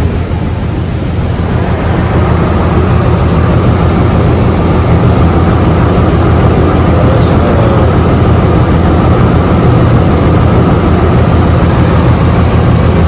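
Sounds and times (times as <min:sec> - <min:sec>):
car engine idling with misfire: 0:00.0 - 0:13.0.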